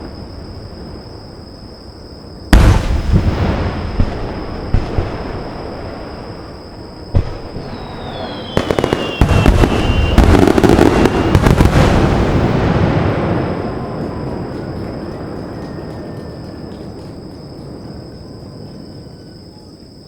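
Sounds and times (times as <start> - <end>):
firework bang: 2.5 - 14.9
fireworks cracking bursts: 2.5 - 17.8
firework whistle falling in pitch: 7.2 - 17.0.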